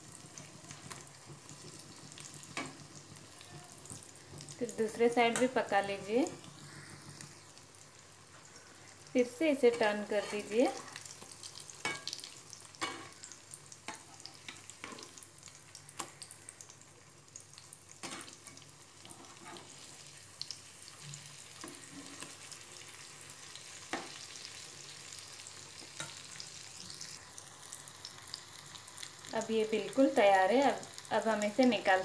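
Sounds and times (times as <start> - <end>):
food sizzling in hot oil: 0.0 - 32.0
metal spatula scraping a pan: 9.6 - 10.7, 18.0 - 19.9.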